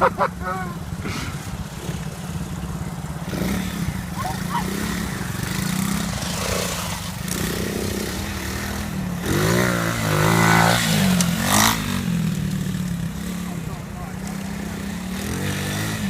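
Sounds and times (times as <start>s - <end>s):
pit bike engine revving: 0.0s - 16.0s.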